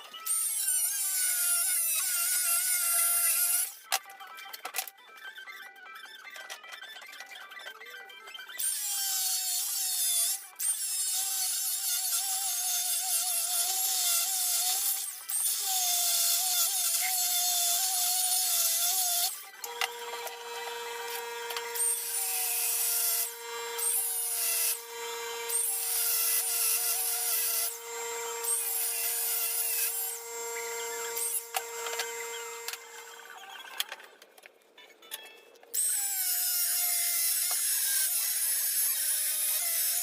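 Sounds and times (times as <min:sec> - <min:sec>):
power tool motor: 0:08.6 - 0:33.4.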